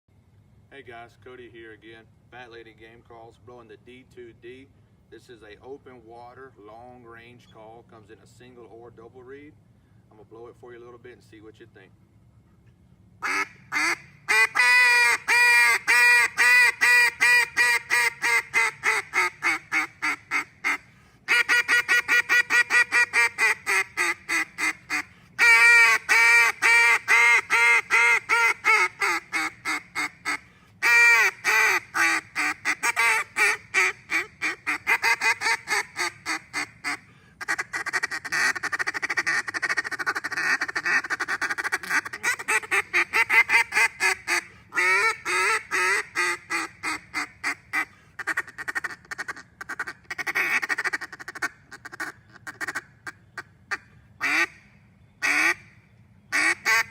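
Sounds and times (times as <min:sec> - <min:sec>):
duck call quacks: 0:13.2 - 0:56.9.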